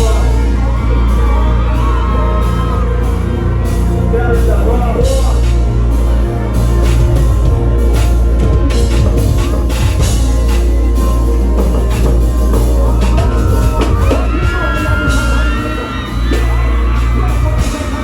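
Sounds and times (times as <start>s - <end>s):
people singing or yelling: 0.0s - 5.5s, 11.2s - 18.0s
loud live music with heavy bass: 0.0s - 18.0s.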